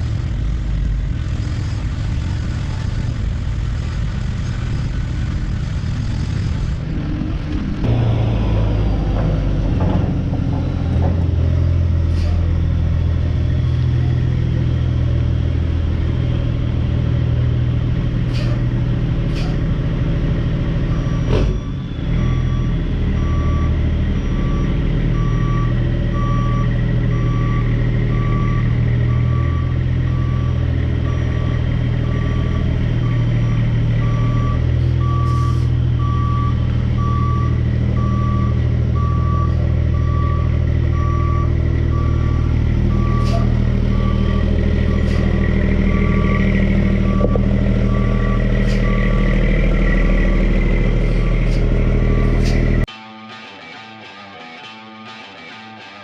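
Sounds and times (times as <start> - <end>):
diesel engine running: 0.0 - 52.9
backup alarm beeping: 20.9 - 52.9.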